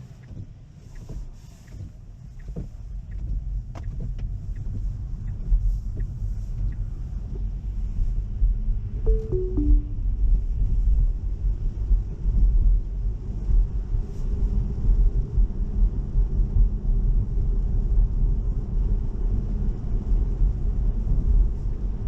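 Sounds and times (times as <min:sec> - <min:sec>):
falling electronic chime: 0:09.1 - 0:10.0.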